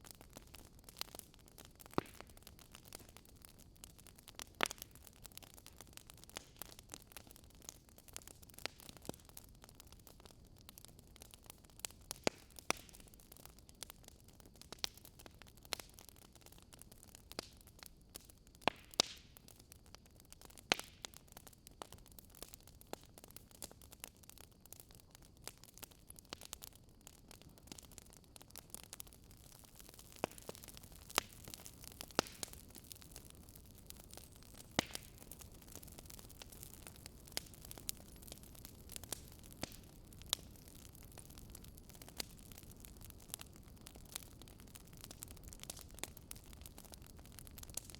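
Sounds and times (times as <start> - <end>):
wood fire crackling and popping: 0.0 - 47.9
fire hissing: 29.0 - 47.9.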